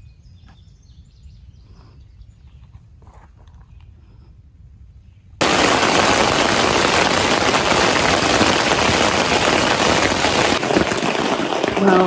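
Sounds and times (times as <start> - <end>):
rain falling on a tent: 5.4 - 12.0.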